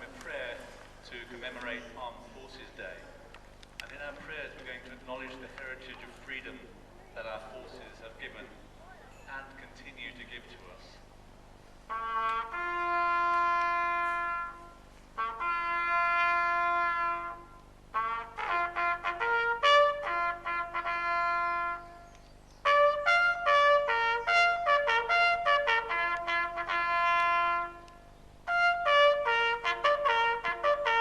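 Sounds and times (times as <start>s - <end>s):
solo brass ceremonial call: 11.9s - 31.0s.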